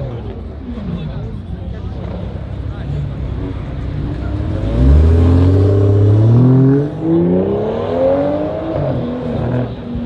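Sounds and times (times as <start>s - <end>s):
car engine accelerating hard: 1.7s - 10.0s.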